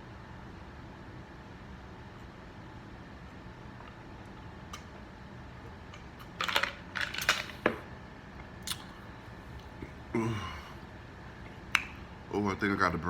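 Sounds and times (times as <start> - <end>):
short low vocal sound: 9.8 - 10.8.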